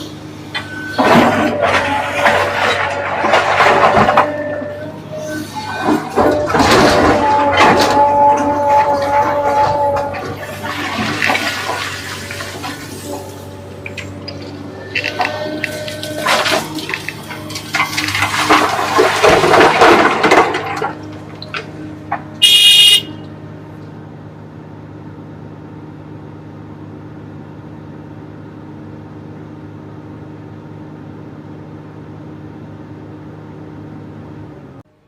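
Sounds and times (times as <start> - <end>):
diesel engine running: 0.0 - 35.0
short horn blast: 0.7 - 11.0, 22.4 - 23.4
rushing crash of material: 0.9 - 4.8, 5.6 - 21.3.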